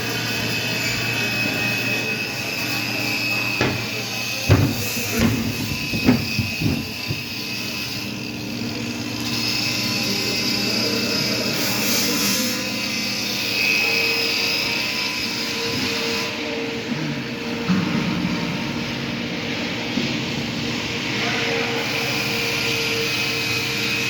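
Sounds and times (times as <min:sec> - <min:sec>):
sharp knocks: 0:03.6 - 0:07.5.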